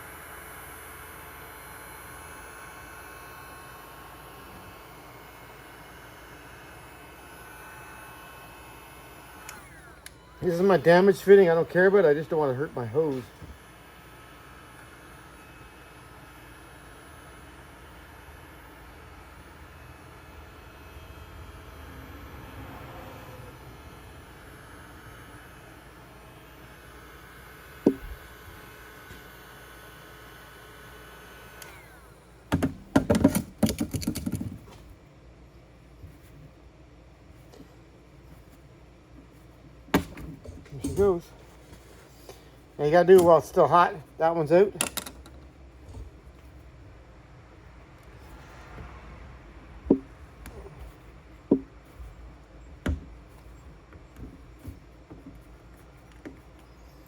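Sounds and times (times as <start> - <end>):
heat gun whine: 0.0 - 34.4, 39.1 - 57.0
fan winding down: 0.0 - 34.8, 39.3 - 57.0
hard parts clicking and rattling: 32.5 - 34.8, 39.3 - 46.9
sharp knocks: 49.8 - 52.0.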